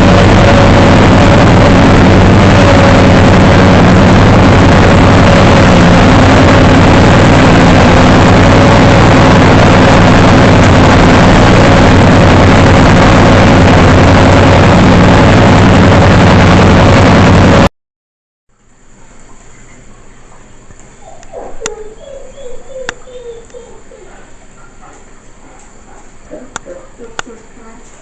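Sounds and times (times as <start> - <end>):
small engine running at high power: 0.0 - 17.7.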